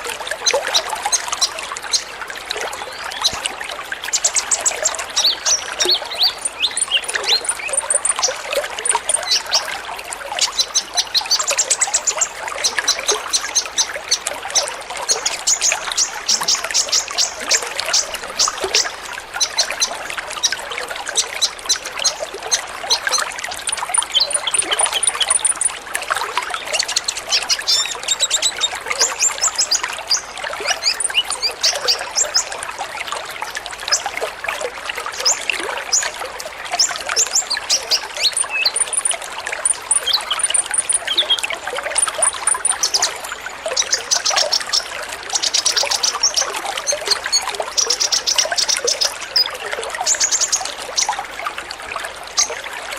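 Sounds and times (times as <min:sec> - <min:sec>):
trickling water: 0:00.0 - 0:52.9
birds chirping and trilling: 0:04.0 - 0:25.8, 0:26.5 - 0:32.5, 0:36.8 - 0:51.2.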